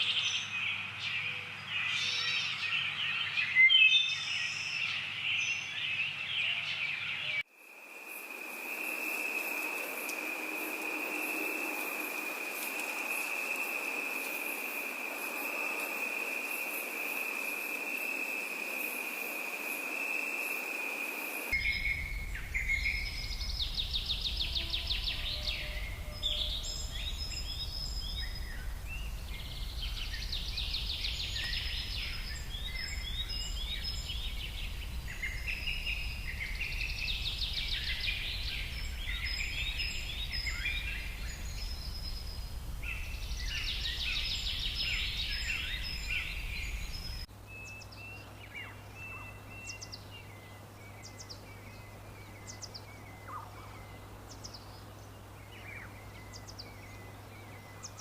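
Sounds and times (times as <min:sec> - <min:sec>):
songbirds singing: 0:00.0 - 0:58.0
hiss: 0:07.6 - 0:47.3
insect-like trill: 0:07.6 - 0:47.3
low steady rumble: 0:21.6 - 0:47.8.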